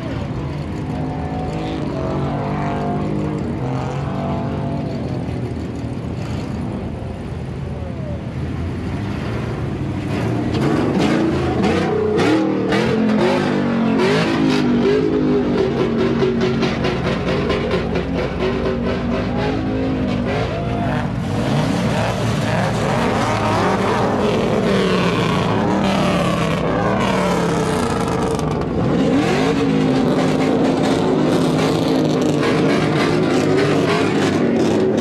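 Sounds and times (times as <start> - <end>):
truck engine revving: 9.2 - 35.0.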